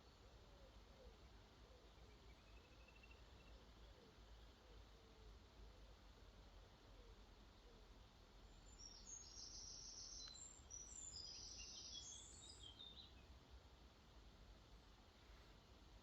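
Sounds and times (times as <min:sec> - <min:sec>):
songbird twittering: 0:01.9 - 0:03.6, 0:08.5 - 0:13.3.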